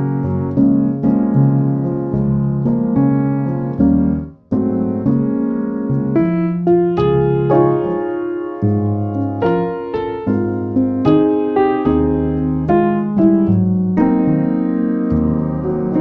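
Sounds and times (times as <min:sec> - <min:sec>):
solo piano music: 0:00.0 - 0:16.0.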